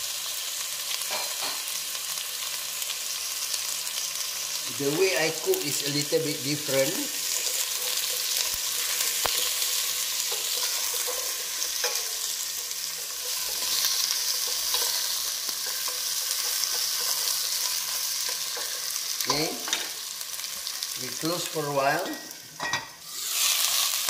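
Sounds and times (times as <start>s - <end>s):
vegetables sizzling in oil: 0.0s - 24.0s
spatula scraping a pot: 7.4s - 19.0s.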